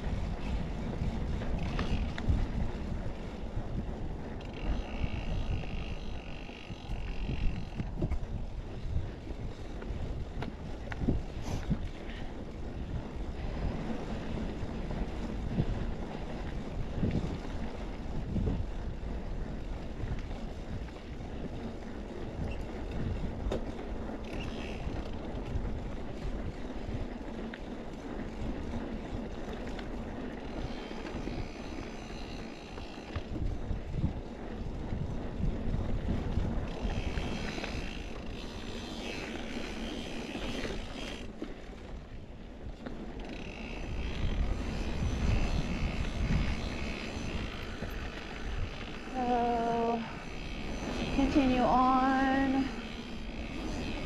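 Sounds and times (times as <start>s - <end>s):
bike tyres rumbling on dirt: 0.0s - 54.0s
wind buffeting microphone: 0.0s - 54.0s
bike knocks and rattles: 22.4s - 26.2s.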